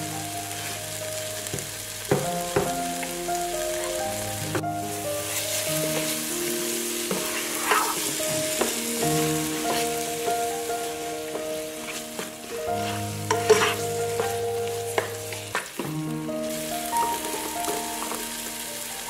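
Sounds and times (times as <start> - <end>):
masala sizzling in a frying pan: 0.0 - 19.0
soft background music: 0.0 - 19.0
spatula stirring and scraping: 7.0 - 10.3, 10.9 - 15.9.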